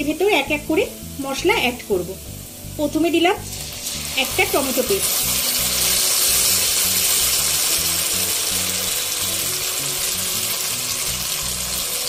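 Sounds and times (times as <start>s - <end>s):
background music with bass line: 0.0s - 12.0s
hot oil sizzling: 0.0s - 12.0s.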